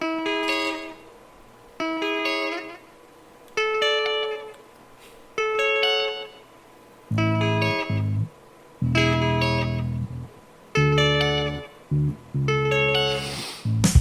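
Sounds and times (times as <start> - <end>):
plucked guitar phrase: 7.1 - 13.0.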